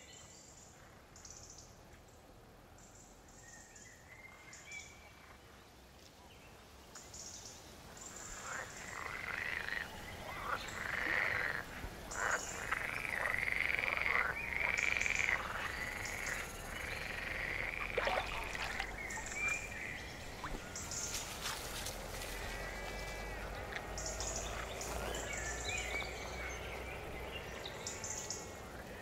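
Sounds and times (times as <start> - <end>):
frogs croaking in chorus: 8.0 - 29.0.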